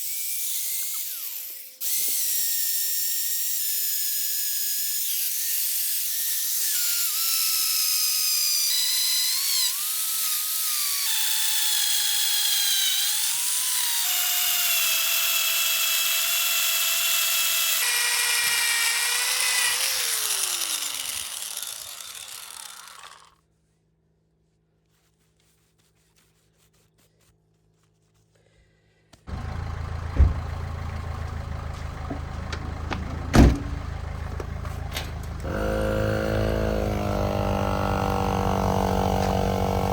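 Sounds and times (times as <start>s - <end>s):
power drill boring into wood: 0.0s - 23.4s, 35.4s - 39.9s
low machine hum: 29.3s - 39.9s
sharp knocks: 30.2s - 30.5s.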